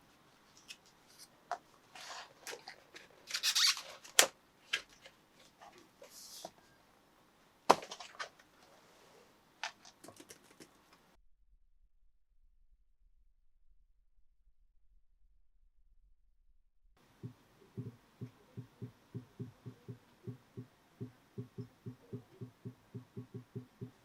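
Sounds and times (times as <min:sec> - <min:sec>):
sharp knocks: 0:17.2 - 0:24.0.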